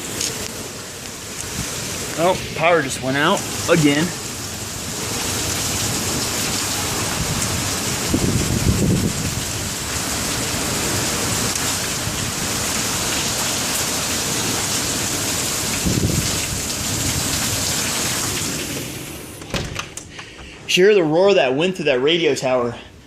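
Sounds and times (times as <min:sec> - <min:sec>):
strong wind: 0:00.0 - 0:13.1, 0:13.9 - 0:20.7
heavy rain: 0:00.0 - 0:20.8
low thunder rumble: 0:03.4 - 0:09.8.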